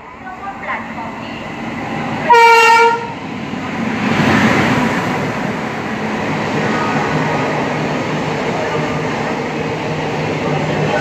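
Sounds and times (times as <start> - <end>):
passenger train running past: 0.0 - 11.0
locomotive horn blast: 2.3 - 3.2.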